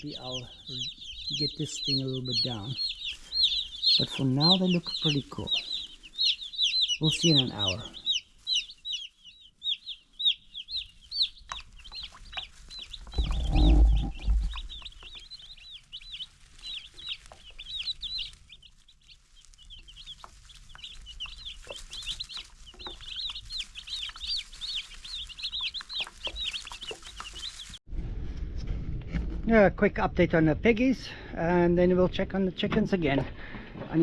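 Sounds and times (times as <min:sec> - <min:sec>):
chicks peeping: 0:00.0 - 0:27.8
low rumble: 0:13.1 - 0:15.0, 0:27.9 - 0:32.9.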